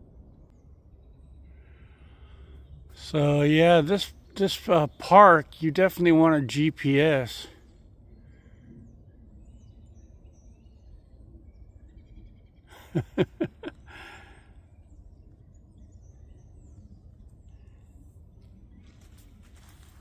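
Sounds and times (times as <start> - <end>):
faint bird chirps: 0.3 - 20.0
soft rustle: 18.4 - 20.0.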